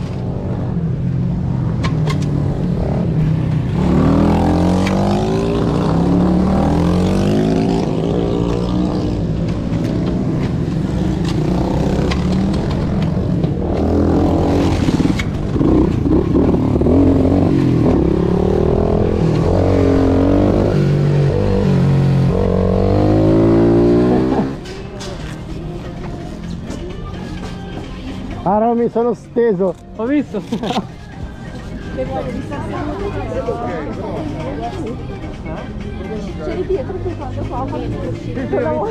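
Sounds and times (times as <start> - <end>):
motorbike engine revving: 1.9 - 24.6.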